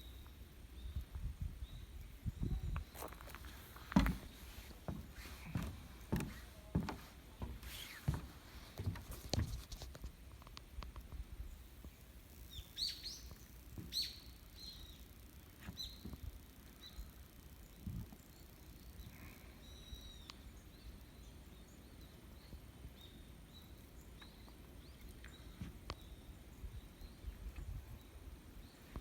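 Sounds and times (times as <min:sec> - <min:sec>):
footsteps walking: 0:02.9 - 0:10.1
bird chirping: 0:12.4 - 0:16.1.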